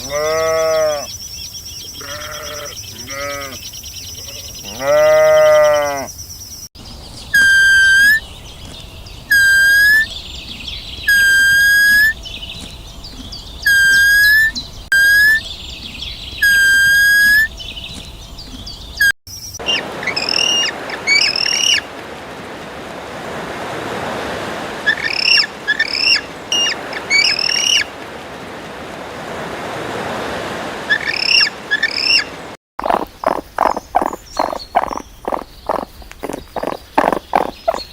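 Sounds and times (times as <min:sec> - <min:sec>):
pitched arching animal calls: 0:01.9 - 0:06.2, 0:07.3 - 0:08.2, 0:09.3 - 0:10.1, 0:11.1 - 0:12.2, 0:13.0 - 0:15.4, 0:19.0 - 0:21.9, 0:24.8 - 0:27.9, 0:30.9 - 0:37.9
quick bird-like chirps: 0:32.8 - 0:37.9.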